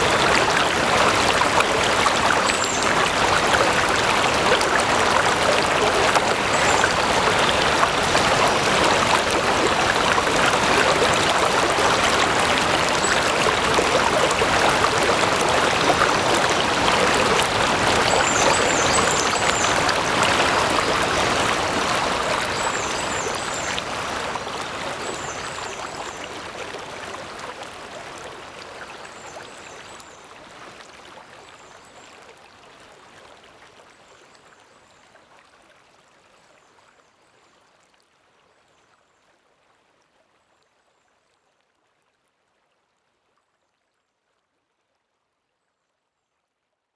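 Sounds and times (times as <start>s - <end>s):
stream water burbling: 0.0s - 35.0s.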